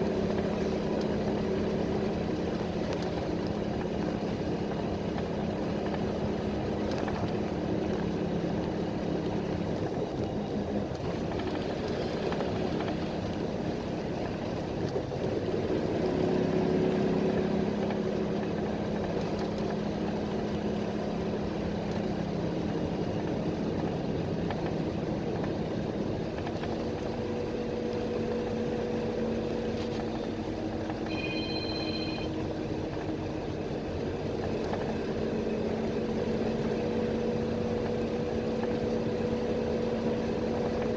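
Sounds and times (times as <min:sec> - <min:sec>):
bus diesel engine: 0:00.0 - 0:40.9
road noise: 0:00.0 - 0:40.9
short high electronic beep: 0:31.0 - 0:32.4.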